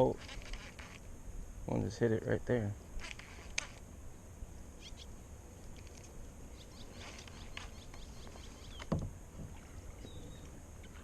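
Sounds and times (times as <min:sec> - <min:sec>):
low outdoor background: 0:00.0 - 0:11.0
faint bird chirps: 0:04.8 - 0:05.2, 0:06.5 - 0:09.0, 0:09.6 - 0:11.0.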